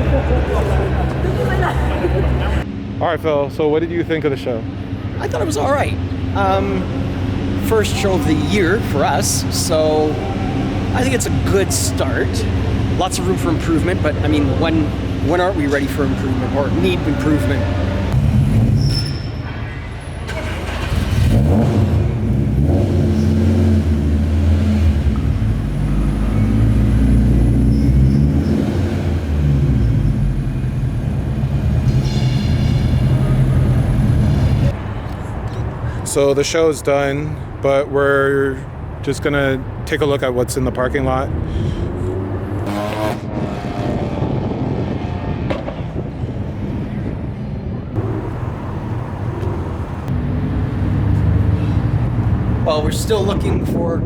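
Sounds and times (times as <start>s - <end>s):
car engine droning: 0.0s - 2.8s, 3.4s - 19.0s, 20.3s - 53.8s
vehicle noise: 0.0s - 54.0s
car engine running: 48.0s - 52.7s.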